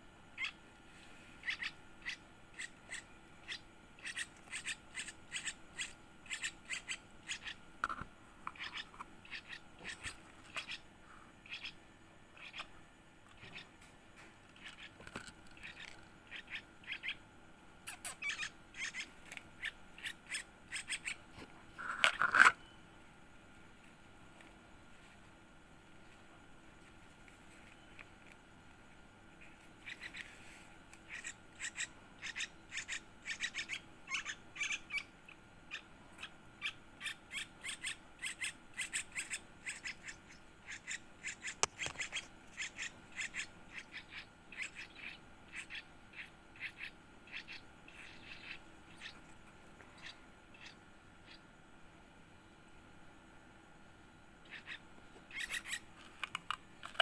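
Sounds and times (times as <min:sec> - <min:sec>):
chick high-pitched chirps: 0:00.4 - 0:00.6, 0:01.4 - 0:07.6, 0:08.5 - 0:13.8, 0:15.6 - 0:17.2, 0:17.8 - 0:21.3, 0:29.4 - 0:30.4, 0:31.1 - 0:49.2, 0:49.8 - 0:51.5, 0:54.4 - 0:55.9.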